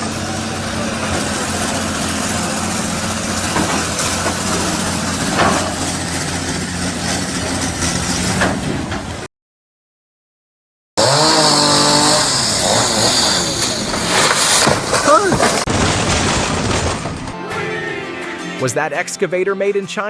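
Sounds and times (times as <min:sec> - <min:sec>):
heavy engine humming: 0:00.0 - 0:09.3, 0:11.0 - 0:15.7
short knocks or clanks: 0:01.0 - 0:09.3.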